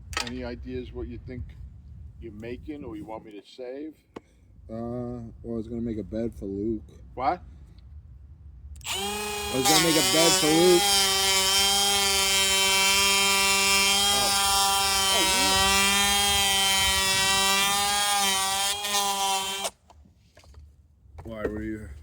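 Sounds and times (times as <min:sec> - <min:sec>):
electric power tool motor running: 0:08.8 - 0:19.8.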